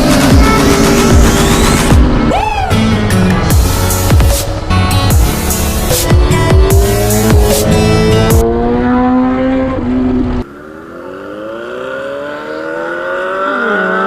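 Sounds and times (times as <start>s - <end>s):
motorcycle engines accelerating: 0.0s - 2.3s, 5.2s - 14.0s
background music: 0.0s - 9.9s.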